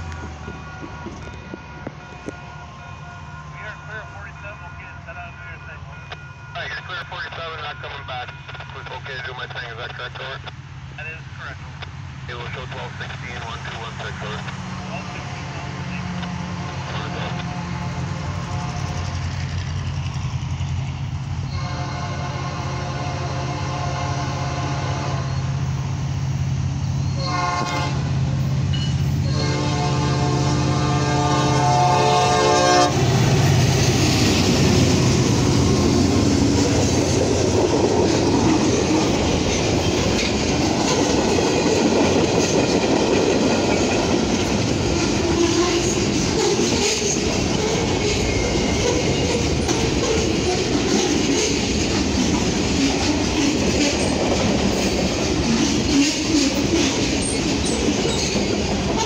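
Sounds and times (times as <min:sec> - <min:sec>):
train horn blasts: 0:00.0 - 0:05.1, 0:06.0 - 0:07.0, 0:14.5 - 0:19.2, 0:21.5 - 0:25.4, 0:27.1 - 0:28.1, 0:29.1 - 0:33.5
diesel locomotive engines humming: 0:00.0 - 0:59.0.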